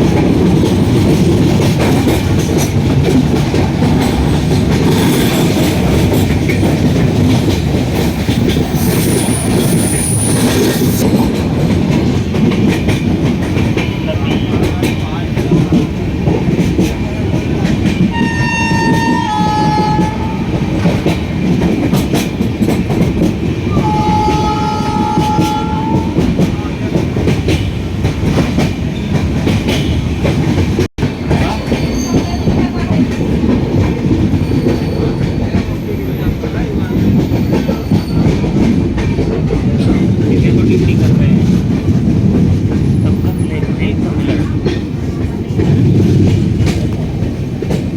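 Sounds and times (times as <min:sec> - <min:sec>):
train rumbling on rails: 0:00.0 - 0:47.9
train horn: 0:18.1 - 0:21.0, 0:23.7 - 0:26.4.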